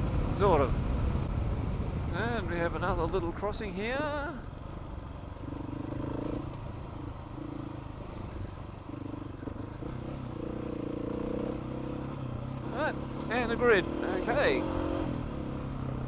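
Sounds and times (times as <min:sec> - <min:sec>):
motorcycle engine revving: 0:05.4 - 0:16.0.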